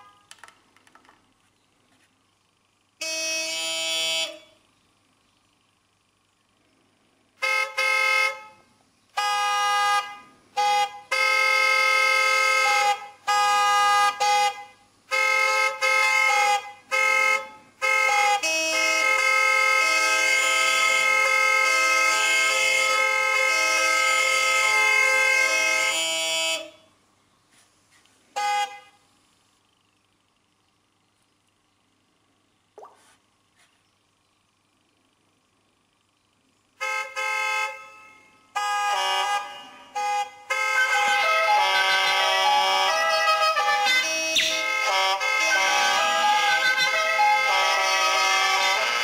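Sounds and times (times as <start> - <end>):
multi-tone vehicle horn blasts: 0.0 - 0.4, 2.9 - 4.6, 7.4 - 27.0, 28.3 - 29.1, 36.8 - 49.0.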